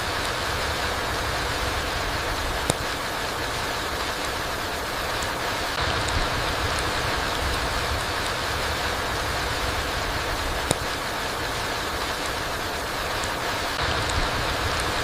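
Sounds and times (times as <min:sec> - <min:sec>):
rain falling through trees: 0:00.0 - 0:15.0
sharp tick: 0:02.6 - 0:03.0, 0:05.2 - 0:09.0, 0:09.6 - 0:11.1, 0:13.2 - 0:15.0.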